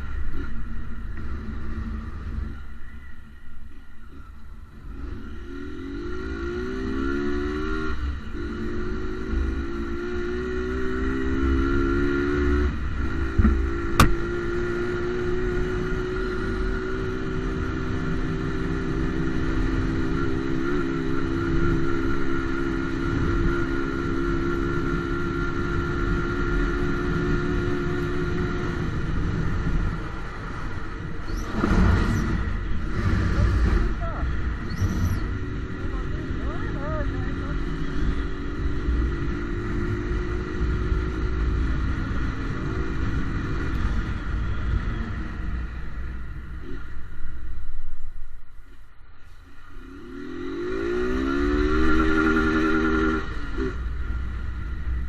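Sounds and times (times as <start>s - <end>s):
motorcycle engine accelerating: 4.0s - 48.3s, 49.6s - 55.0s
low rumble: 53.2s - 55.0s.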